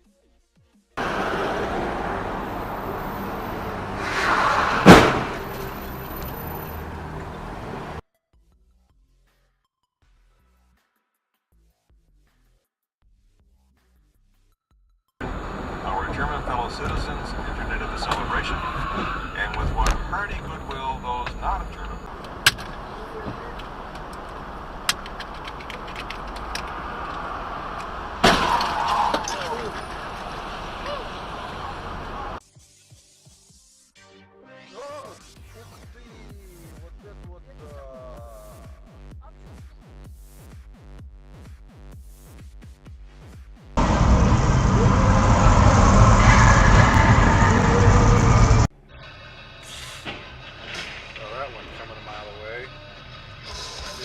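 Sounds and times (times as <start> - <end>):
car road noise: 1.0 - 8.0, 15.2 - 32.4, 43.8 - 54.0
vehicle collision bang: 1.0 - 8.0, 15.2 - 32.4, 43.8 - 48.7.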